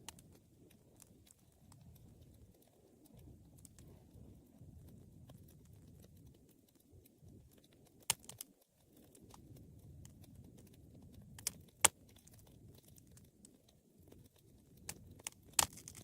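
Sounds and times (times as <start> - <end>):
fire crackles: 0.0 - 16.0
fire flame rumble: 0.0 - 16.0
sharp pops of burning wood: 7.1 - 13.3, 14.0 - 16.0.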